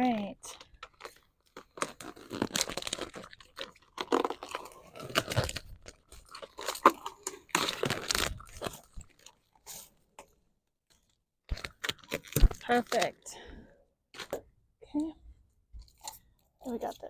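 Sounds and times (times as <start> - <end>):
wrap film being peeled off: 0.8 - 9.3.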